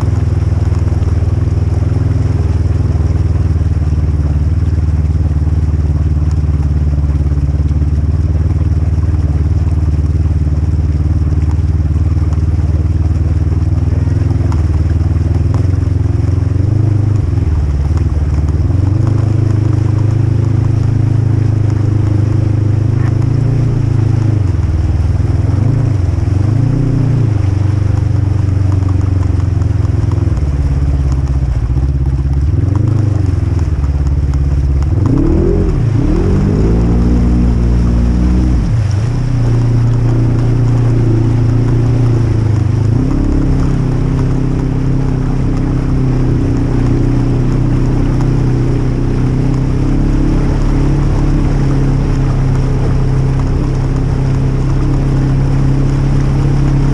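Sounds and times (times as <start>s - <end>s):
engine revving: 14.2s - 30.6s, 32.5s - 56.9s.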